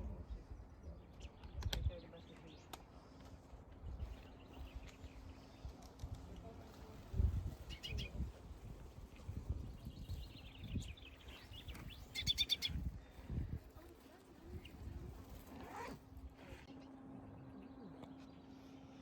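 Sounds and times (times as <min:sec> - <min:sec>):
small birds chirping: 0:07.1 - 0:18.7.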